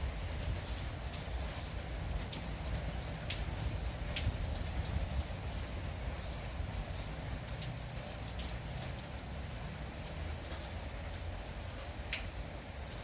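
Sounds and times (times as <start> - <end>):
light drizzle: 0.0 - 13.0
drops ticking on surfaces: 0.5 - 5.3, 7.0 - 10.7, 11.3 - 13.0.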